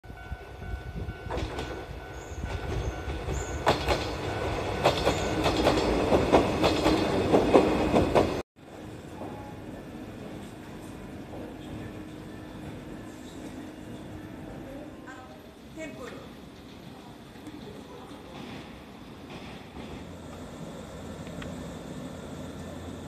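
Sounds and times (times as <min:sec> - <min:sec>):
train wheels clacking over rail joints: 0:02.6 - 0:04.2, 0:04.8 - 0:08.4, 0:16.6 - 0:20.5.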